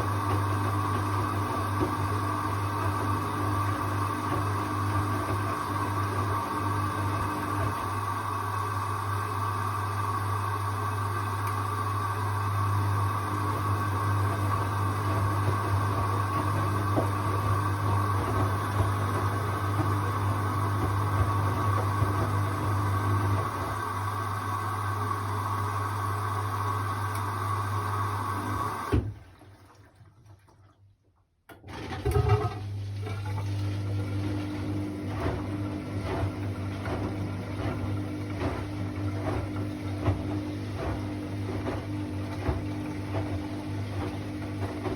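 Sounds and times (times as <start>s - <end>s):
washing machine motor hum: 0.0s - 30.7s, 31.5s - 44.9s
washing machine clunk: 28.6s - 29.3s, 31.5s - 44.9s.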